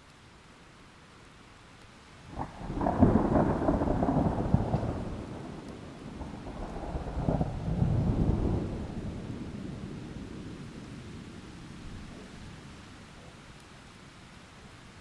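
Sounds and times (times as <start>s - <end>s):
rain hissing: 1.5s - 15.0s
thunder cracking and rolling: 2.3s - 12.3s.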